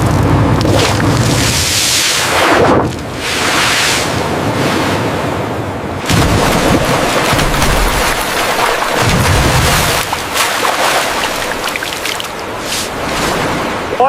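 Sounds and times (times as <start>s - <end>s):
low rumbles: 0.0s - 14.0s
water splashing and pouring: 0.6s - 3.5s, 6.0s - 13.6s.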